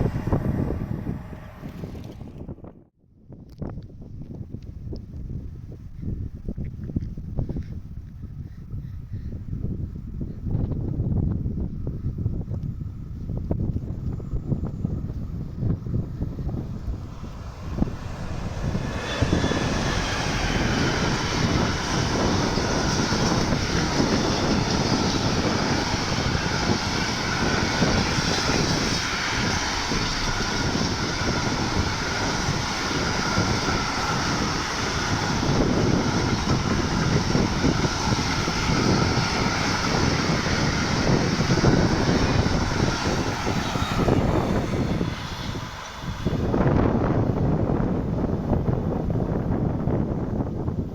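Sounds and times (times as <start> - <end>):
train wheels rolling on rails: 12.4 - 50.8.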